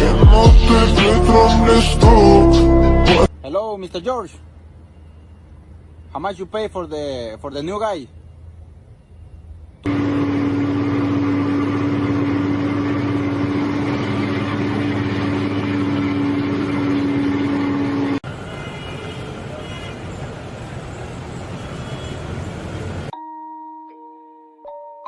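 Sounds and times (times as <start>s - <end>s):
loud vehicle noise steady tone: 0.0s - 23.1s
rough vehicle noise: 9.9s - 23.1s.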